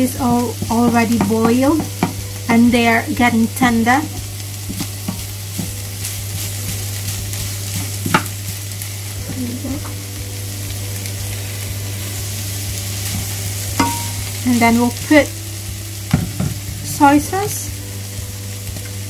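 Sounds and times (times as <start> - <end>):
beef sizzling in a wok: 0.0 - 19.0
wooden spoon knocking pan: 0.2 - 2.3, 13.8 - 14.2.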